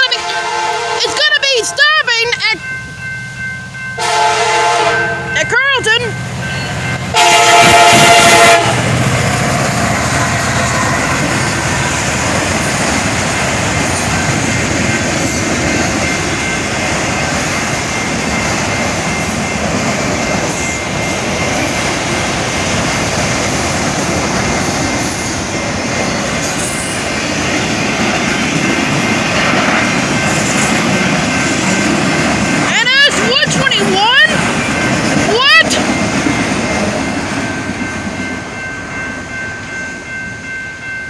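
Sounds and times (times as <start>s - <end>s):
freight train cars rumbling and clacking: 0.0s - 41.0s
train wheel squeal: 8.8s - 15.7s, 20.3s - 28.0s.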